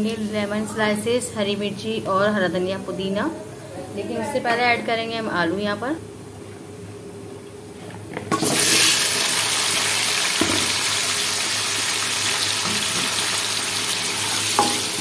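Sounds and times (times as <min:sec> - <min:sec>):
potatoes sizzling in hot oil: 0:08.3 - 0:15.0.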